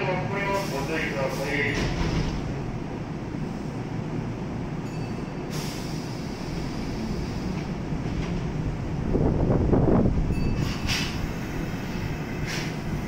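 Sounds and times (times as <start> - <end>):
train equipment low rumble: 0.0 - 13.0
air hiss: 5.5 - 7.6, 10.6 - 13.0.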